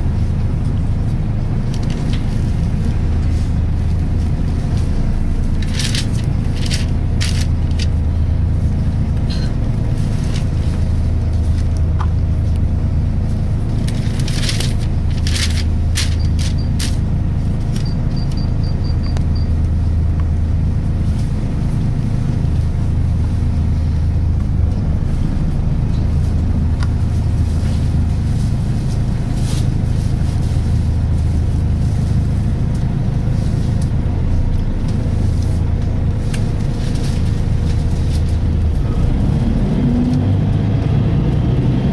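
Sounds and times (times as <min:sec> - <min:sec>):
bus diesel engine drone: 0:00.0 - 0:41.9
bodywork rattles and clicks: 0:03.1 - 0:08.1, 0:13.6 - 0:18.5
faint gearbox whine: 0:13.9 - 0:20.4.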